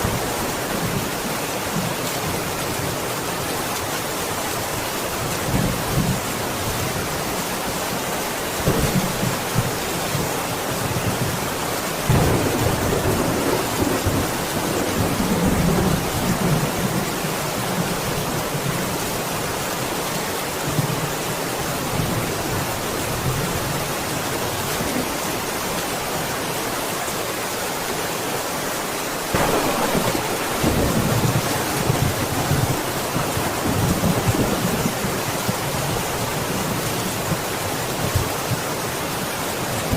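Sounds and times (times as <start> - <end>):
heavy rain hissing: 0.0 - 39.9
rolling thunder: 12.1 - 16.8, 29.4 - 35.6.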